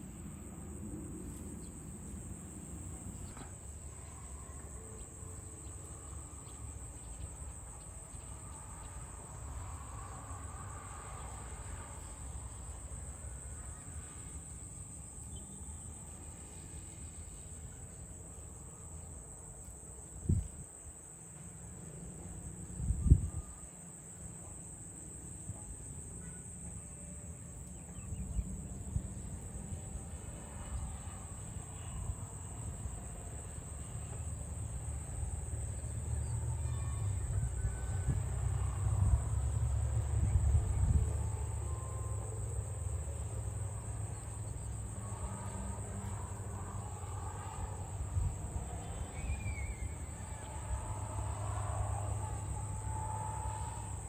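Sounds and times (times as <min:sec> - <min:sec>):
high-pitched insect drone: 0:25.6 - 0:54.0.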